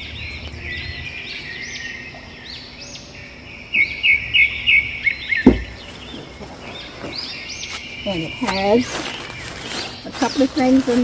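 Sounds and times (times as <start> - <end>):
birds chirping and singing: 0.0 - 11.0
dull thump: 5.4 - 7.2.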